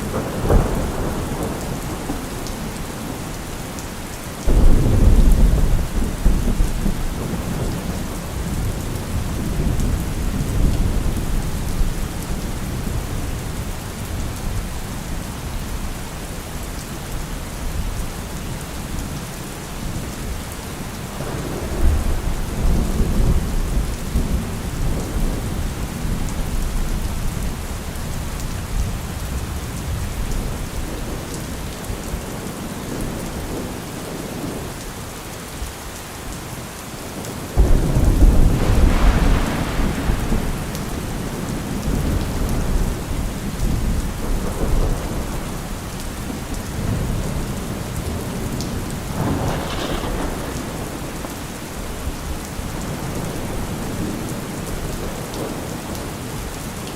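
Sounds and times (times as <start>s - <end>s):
loud thunderclap: 0.0s - 2.7s, 4.5s - 11.7s, 37.6s - 54.2s
rolling thunder: 0.0s - 3.4s, 4.4s - 14.8s, 21.2s - 32.0s, 37.6s - 56.1s
steady rain: 0.0s - 56.9s.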